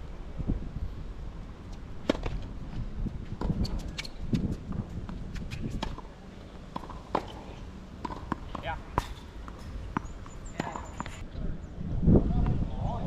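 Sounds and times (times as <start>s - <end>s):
wind rumble on microphone: 0.0s - 6.1s, 9.6s - 13.0s
tennis ball struck and bouncing: 6.7s - 11.2s.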